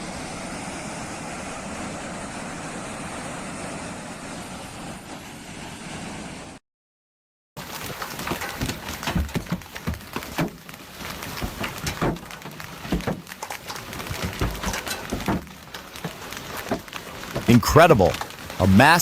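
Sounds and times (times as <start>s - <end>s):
hailstones clattering: 7.6s - 19.0s.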